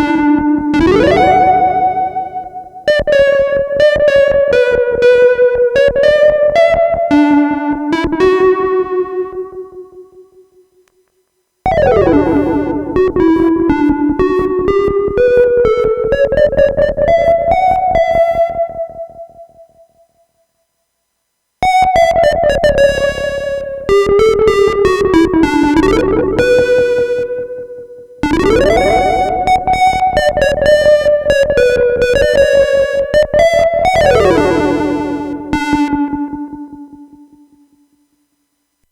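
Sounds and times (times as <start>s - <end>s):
buzzy toy synthesizer notes: 0.8s - 2.9s, 11.7s - 14.5s, 28.2s - 31.0s, 33.4s - 36.3s.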